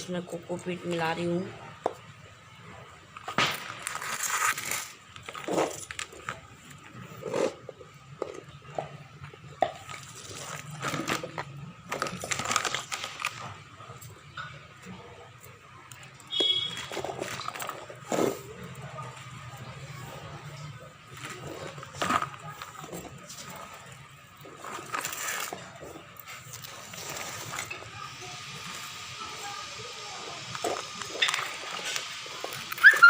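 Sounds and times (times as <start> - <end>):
hands mixing soil: 15.0 - 29.5.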